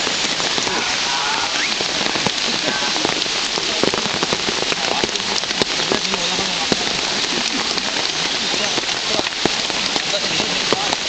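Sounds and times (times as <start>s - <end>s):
raindrops tapping close by: 0.0s - 11.0s
steady rain falling: 0.0s - 11.0s.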